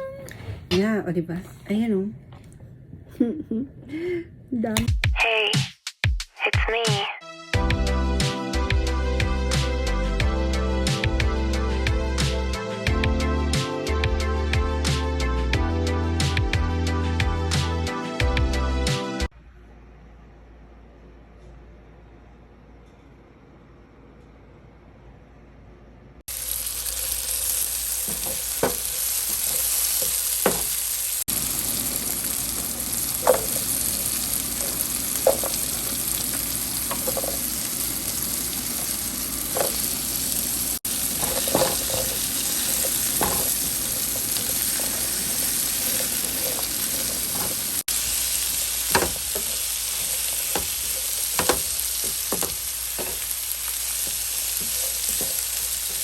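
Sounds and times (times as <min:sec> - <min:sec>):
food sizzling in oil: 0:26.3 - 0:56.0
utensil knocking against pan: 0:28.1 - 0:28.9, 0:30.4 - 0:30.7, 0:33.2 - 0:33.7, 0:35.2 - 0:35.6, 0:36.8 - 0:37.4, 0:48.9 - 0:49.6, 0:50.5 - 0:53.3.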